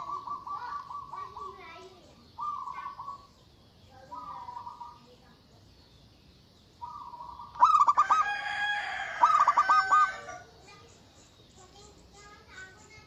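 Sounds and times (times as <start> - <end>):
dove cooing: 0.0 - 3.4, 4.0 - 5.3, 6.8 - 10.8.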